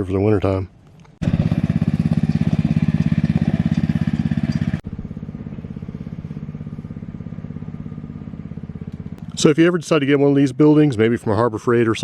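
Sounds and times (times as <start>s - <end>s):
small engine idling: 1.2s - 9.6s.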